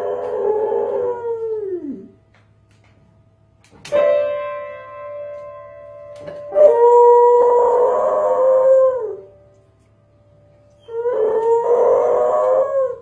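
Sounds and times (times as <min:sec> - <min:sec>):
dog howling: 0:00.0 - 0:02.1, 0:06.5 - 0:09.3, 0:10.8 - 0:13.0.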